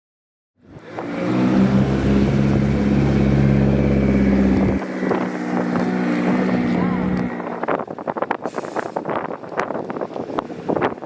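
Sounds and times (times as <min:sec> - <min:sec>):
car engine running: 0:00.6 - 0:08.3.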